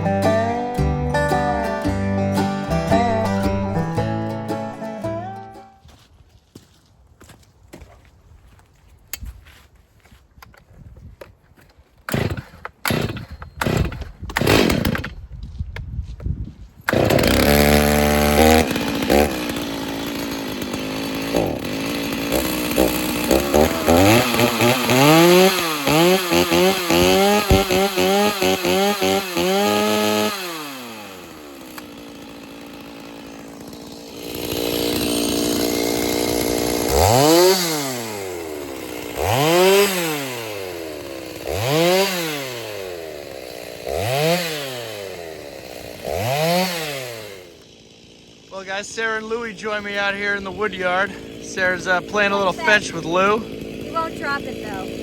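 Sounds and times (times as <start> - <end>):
chainsaw engine revving: 2.5 - 5.0, 12.1 - 15.2, 16.9 - 55.0
sharp knocks: 27.0 - 28.0.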